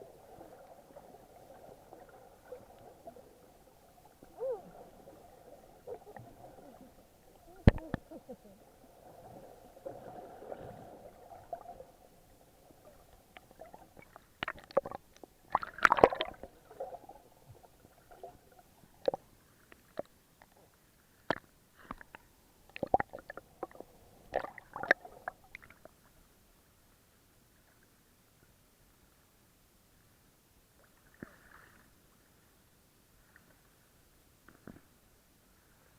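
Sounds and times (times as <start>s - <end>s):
water sloshing and gurgling: 0.0s - 26.0s.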